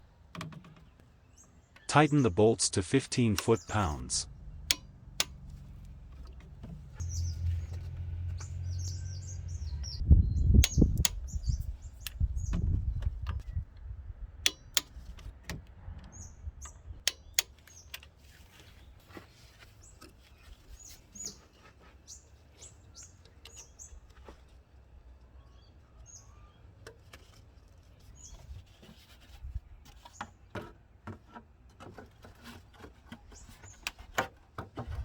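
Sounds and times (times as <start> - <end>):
small birds chirping: 0.0 - 13.7, 16.1 - 30.5, 32.7 - 34.1
sharp clicks and knocks: 0.3 - 1.9, 3.2 - 8.6, 10.6 - 13.5, 14.4 - 18.1
low rumble: 4.0 - 13.0.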